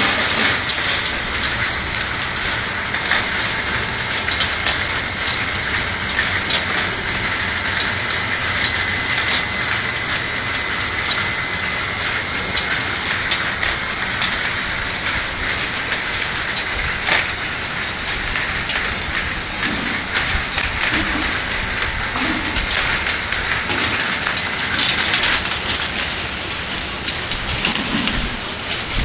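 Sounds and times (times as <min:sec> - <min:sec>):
faint machine whine: 0:00.0 - 0:29.0.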